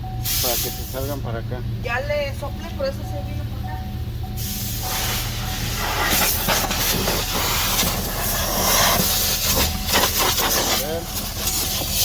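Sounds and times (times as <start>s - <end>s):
hissing rush of air: 4.4s - 12.0s.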